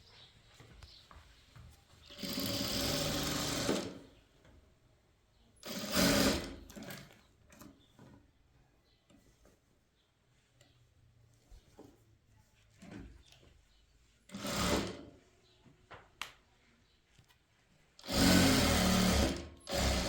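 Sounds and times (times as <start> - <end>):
sewing machine stitching: 2.1 - 4.1, 5.6 - 7.7, 14.3 - 15.1, 18.0 - 20.0.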